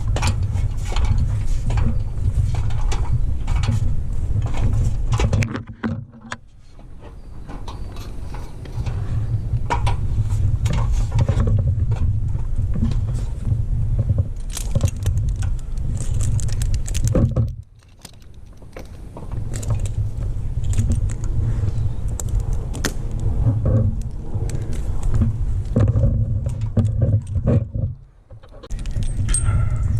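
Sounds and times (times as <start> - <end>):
metal climbing hardware clinking: 14.4 - 20.0, 28.4 - 29.9
steady low rumble: 18.4 - 29.9.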